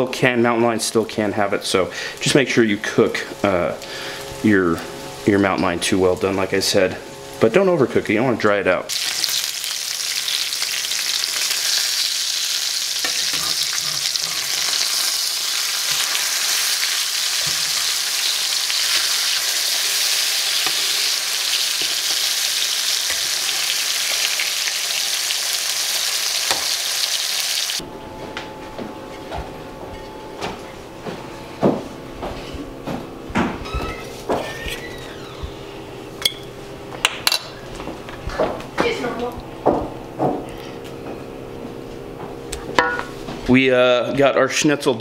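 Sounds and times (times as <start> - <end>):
cutlets sizzling in oil: 8.9 - 27.8.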